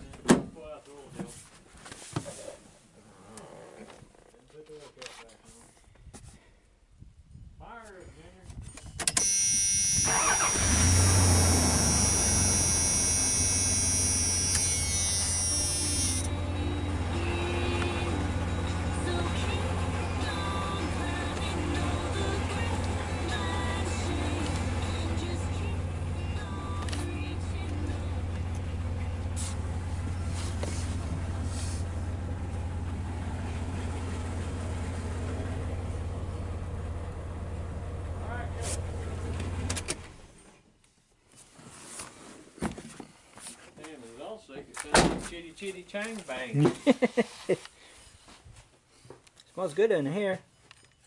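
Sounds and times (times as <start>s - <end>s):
truck engine idling: 10.0s - 39.7s.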